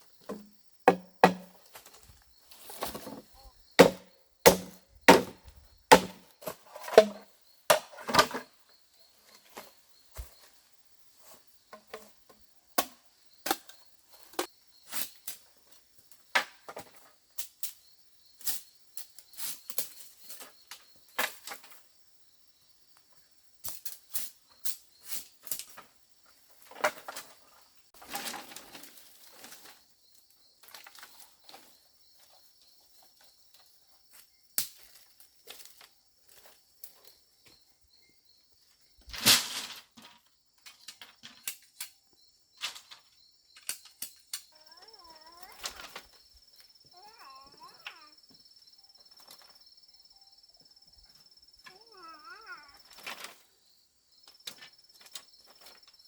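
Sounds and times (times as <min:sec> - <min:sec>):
sharp blows on wood: 0:00.9 - 0:01.5, 0:03.8 - 0:06.2.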